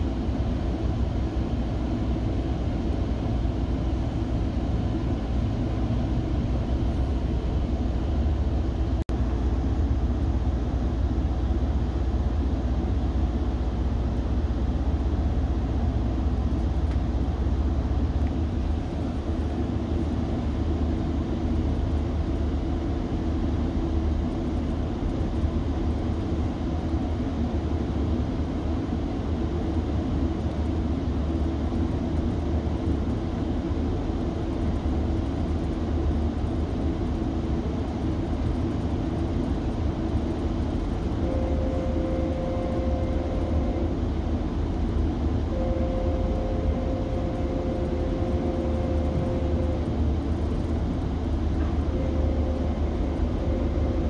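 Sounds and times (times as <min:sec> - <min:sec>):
train rumbling: 0:00.0 - 0:54.0
held tone: 0:41.1 - 0:44.0, 0:45.4 - 0:50.7, 0:51.5 - 0:54.0.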